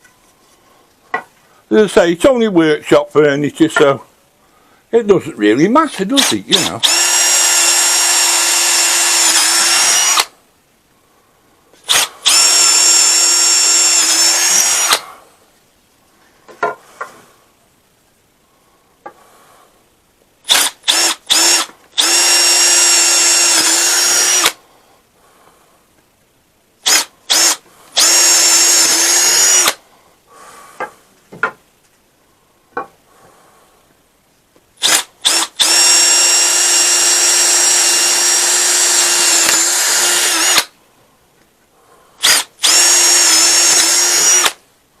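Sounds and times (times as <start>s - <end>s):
electric drill boring holes: 6.2s - 10.3s, 11.8s - 15.0s, 20.5s - 24.6s, 26.8s - 29.8s, 34.8s - 40.7s, 42.2s - 44.6s.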